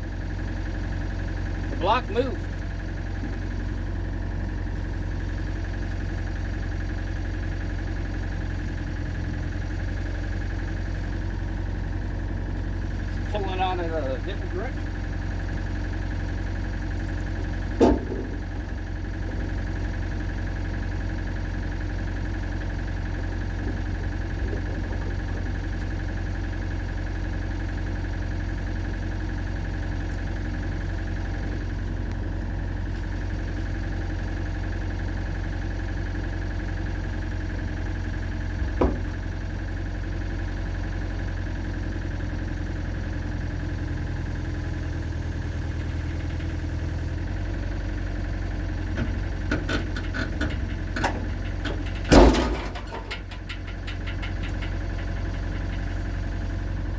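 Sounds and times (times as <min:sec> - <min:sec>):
excavator engine idling: 0:00.0 - 0:56.9
sharp knocks: 0:17.8 - 0:18.5, 0:38.6 - 0:39.3.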